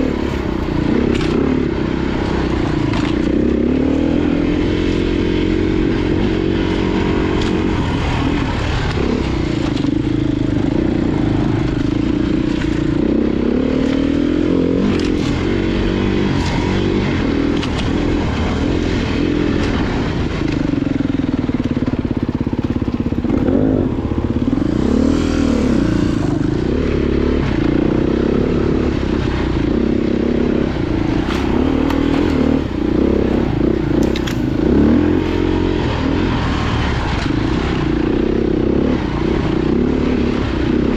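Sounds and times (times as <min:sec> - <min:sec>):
motorcycle engines revving: 0:00.0 - 0:40.9.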